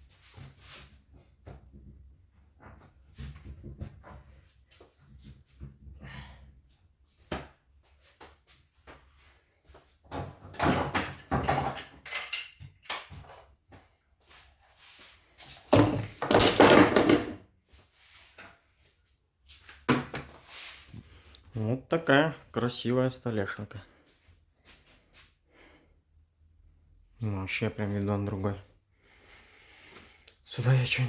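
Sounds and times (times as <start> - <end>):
wooden knocks and clatter: 10.1 - 13.4, 15.7 - 17.4.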